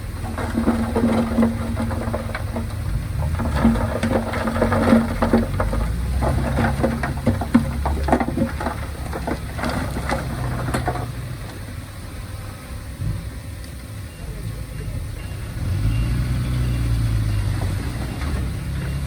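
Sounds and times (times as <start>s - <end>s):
soil and stones clattering: 0.0s - 12.0s, 16.3s - 19.0s
diesel engine rumbling: 0.0s - 19.0s.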